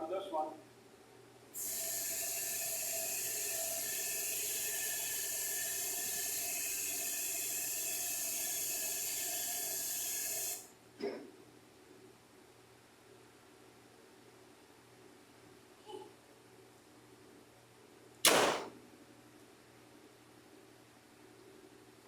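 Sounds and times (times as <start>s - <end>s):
bright hiss: 18.3s - 18.7s.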